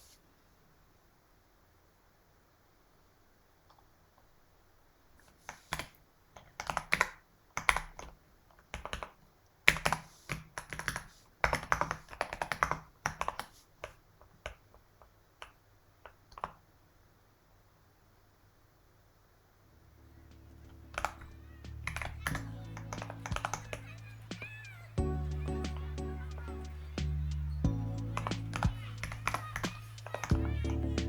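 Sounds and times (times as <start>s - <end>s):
typing on computer keyboard: 5.2s - 14.8s, 15.4s - 16.6s, 20.6s - 24.8s, 27.8s - 30.8s.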